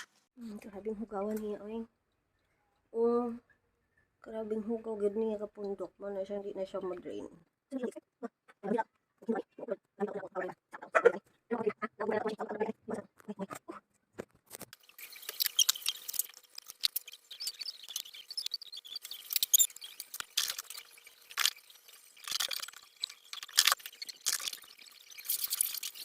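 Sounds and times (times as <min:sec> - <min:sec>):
wet scraping and clicking: 0:12.9 - 0:26.0
dripping water: 0:14.7 - 0:26.0.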